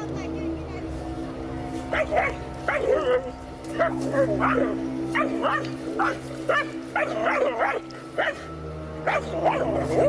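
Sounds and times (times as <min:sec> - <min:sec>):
dog barking: 0:03.8 - 0:08.5, 0:09.1 - 0:10.0.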